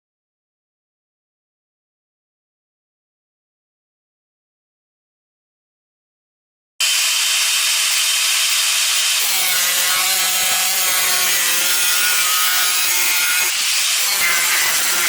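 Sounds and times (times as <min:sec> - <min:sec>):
angle grinder cutting steel: 0:06.8 - 0:15.0.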